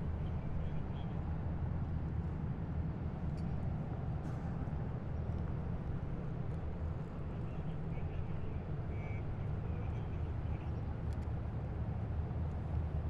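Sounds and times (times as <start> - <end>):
heavy vehicle engines rumbling: 0.0 - 13.0.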